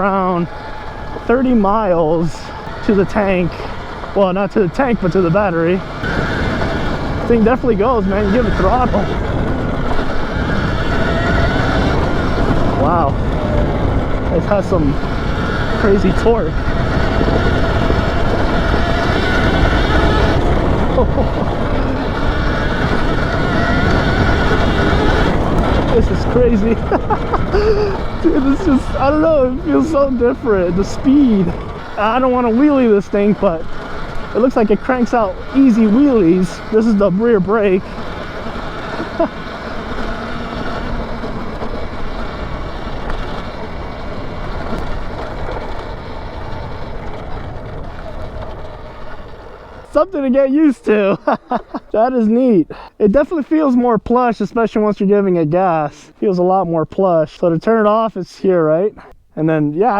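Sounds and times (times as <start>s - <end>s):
electric motor whine: 0.0s - 50.0s
wind rumble on microphone: 0.0s - 52.0s
tyre noise: 0.0s - 59.9s.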